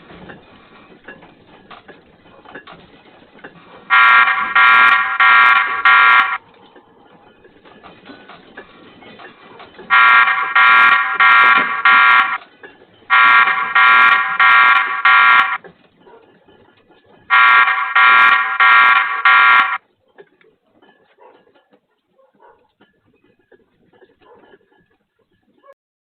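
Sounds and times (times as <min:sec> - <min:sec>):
electronic alarm beeping: 0:03.9 - 0:06.4, 0:09.9 - 0:12.4, 0:13.1 - 0:15.6, 0:17.3 - 0:19.8.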